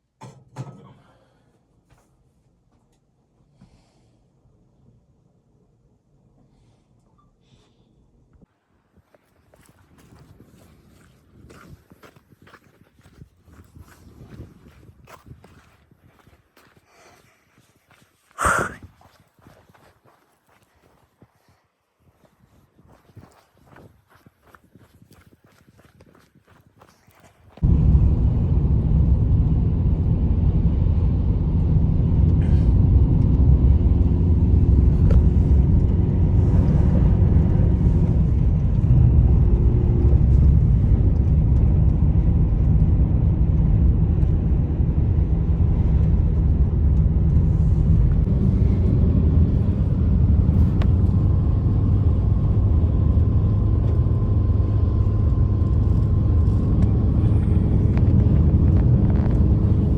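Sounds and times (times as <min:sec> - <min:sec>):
blizzard wind roaring: 0:27.6 - 0:59.9.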